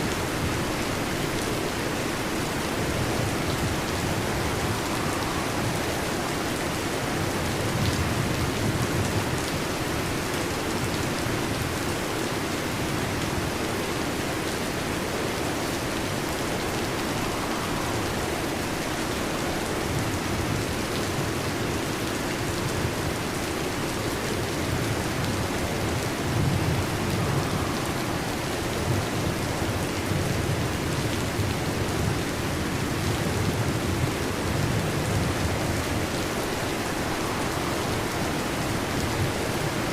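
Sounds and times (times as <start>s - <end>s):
heavy rain falling: 0.0s - 39.9s
distant thunder rumbling: 2.7s - 9.2s, 16.0s - 20.9s, 33.5s - 39.9s.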